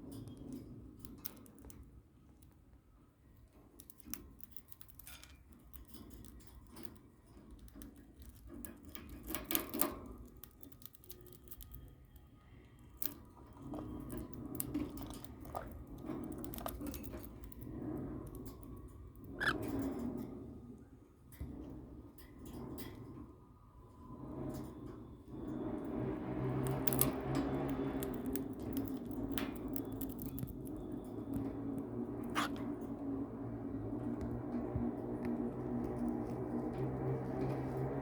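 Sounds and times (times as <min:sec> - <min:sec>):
birds pecking and crunching cornflakes: 0:03.6 - 0:19.6, 0:26.4 - 0:32.8.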